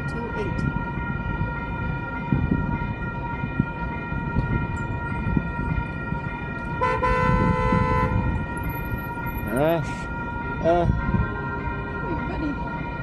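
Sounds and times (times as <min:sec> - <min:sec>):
low traffic rumble: 0:00.0 - 0:13.0
railroad crossing bell ringing: 0:00.0 - 0:13.0
horn: 0:06.8 - 0:08.2.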